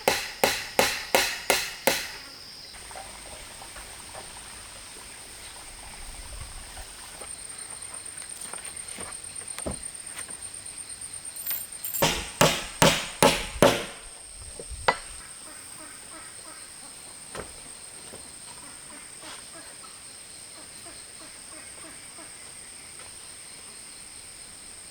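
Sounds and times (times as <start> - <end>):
hand tool striking wood: 0.0 - 2.3, 11.4 - 14.1
high insect drone: 0.0 - 5.7.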